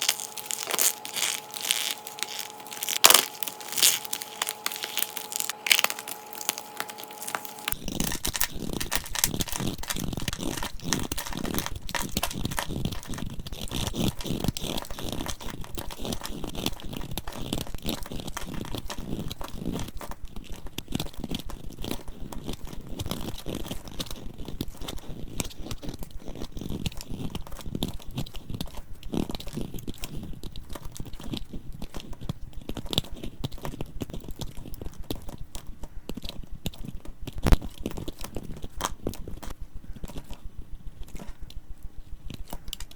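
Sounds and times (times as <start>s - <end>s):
dried soap crunching: 0.0s - 29.6s.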